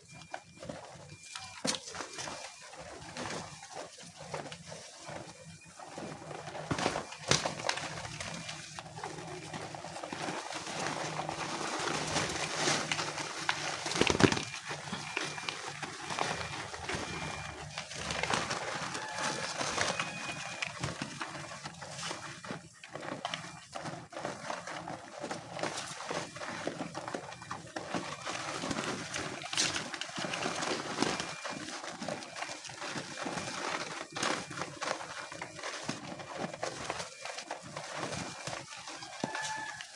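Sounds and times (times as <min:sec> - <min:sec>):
pigeons pecking clicks: 0:00.6 - 0:39.9
wing flutters: 0:05.9 - 0:22.2.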